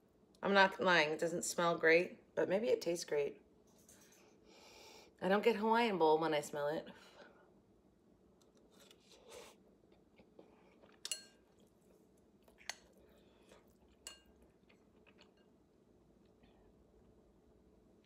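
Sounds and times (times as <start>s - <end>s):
chewing soft rice: 8.4s - 17.1s.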